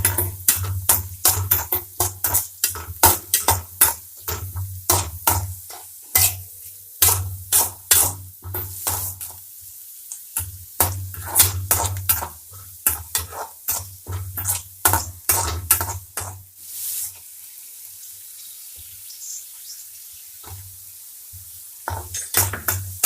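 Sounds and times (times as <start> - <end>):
spatula stirring and scraping: 0.0 - 9.4, 10.4 - 17.3, 21.8 - 23.0
onions sizzling in oil: 0.0 - 23.0.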